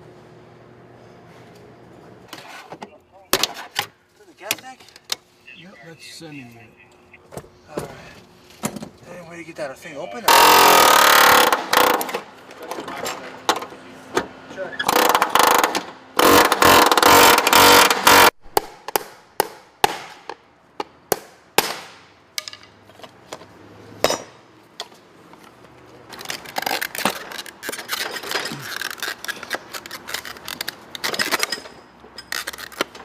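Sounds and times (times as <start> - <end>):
tools rattling and clinking: 26.1 - 33.0.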